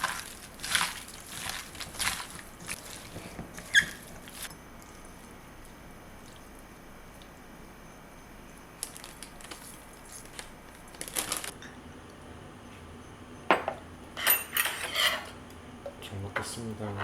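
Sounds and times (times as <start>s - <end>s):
tableware clicking and knocking: 13.5s - 15.4s.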